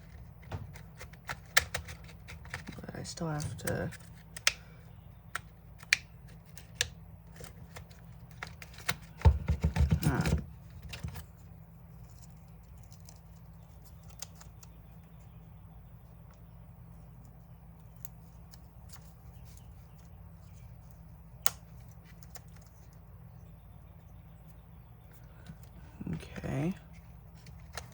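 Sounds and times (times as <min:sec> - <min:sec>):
plastic knocks and rattles: 0:00.0 - 0:03.7, 0:08.3 - 0:11.2
plastic parts clicking: 0:00.0 - 0:04.6.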